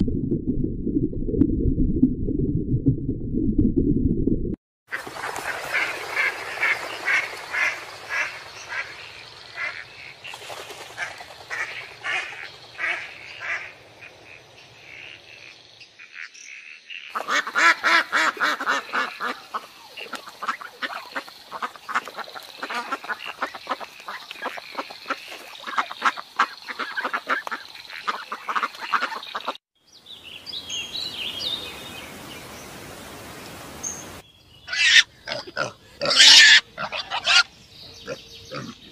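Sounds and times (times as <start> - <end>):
ducks quacking: 4.9 - 10.2, 10.9 - 15.4, 17.0 - 29.6.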